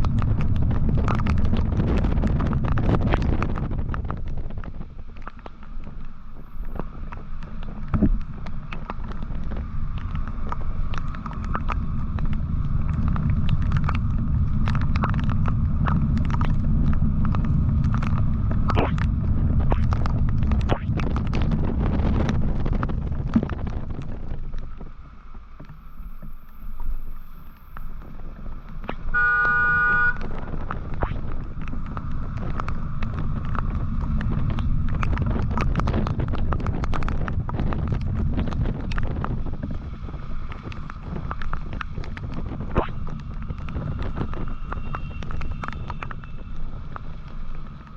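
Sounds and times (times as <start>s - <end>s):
motorcycle engine rumble: 0.0s - 47.9s
wind on microphone: 0.0s - 47.9s
vehicle horn: 29.1s - 30.3s.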